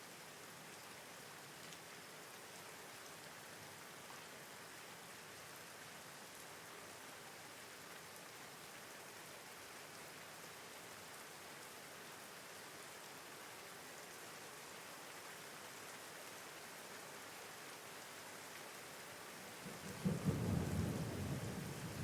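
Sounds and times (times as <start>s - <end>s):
soft rain falling: 0.0s - 22.0s
faint raindrop ticks: 0.6s - 3.4s.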